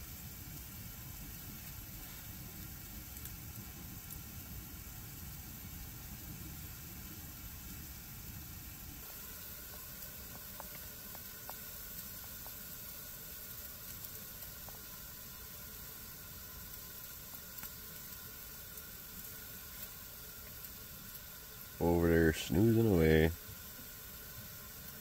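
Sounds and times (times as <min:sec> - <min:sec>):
percolator hissing and sizzling: 0:00.0 - 0:25.0
faint ticks: 0:00.5 - 0:04.2, 0:09.4 - 0:21.8.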